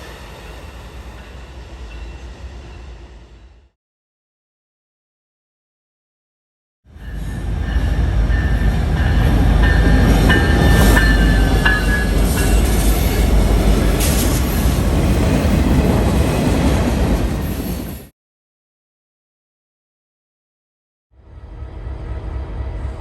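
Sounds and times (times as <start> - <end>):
train wheels rumbling on rail: 6.9 - 18.1.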